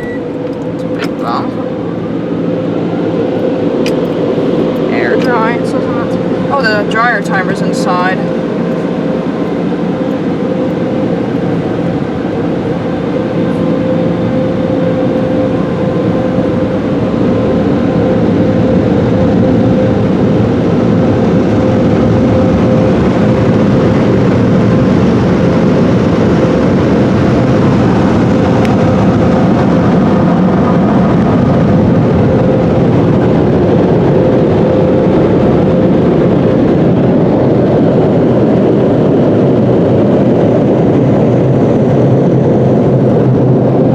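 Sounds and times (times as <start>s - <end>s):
car wash dryer blowers: 0.0s - 43.9s.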